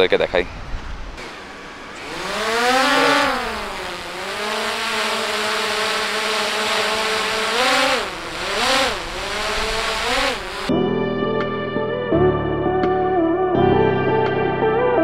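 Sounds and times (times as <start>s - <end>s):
drone propellers whining: 1.2s - 10.7s.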